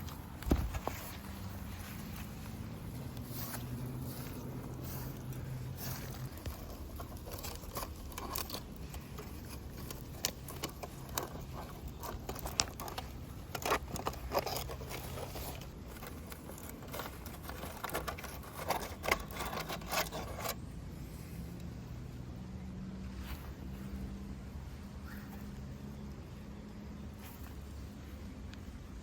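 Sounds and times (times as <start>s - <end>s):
objects clicking and scraping: 0.0s - 20.7s.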